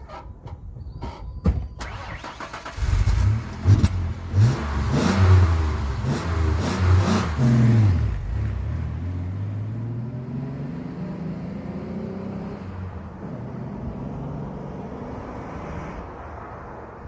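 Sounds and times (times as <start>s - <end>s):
engine revving and idling: 2.2s - 15.0s.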